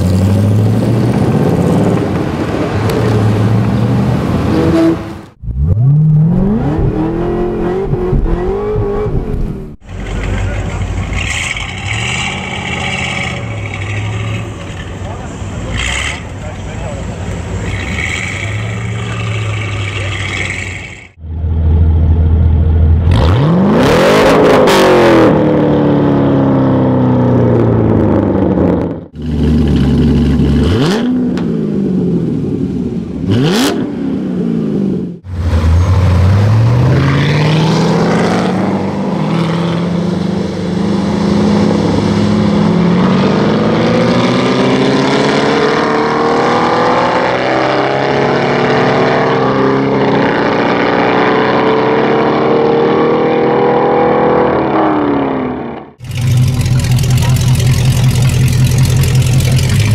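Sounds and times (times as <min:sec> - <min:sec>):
cars accelerating away: 0:00.0 - 0:32.3, 0:33.2 - 0:59.9
car engine revving: 0:00.0 - 0:59.9
car engine idling: 0:07.9 - 0:23.1, 0:56.0 - 0:59.9.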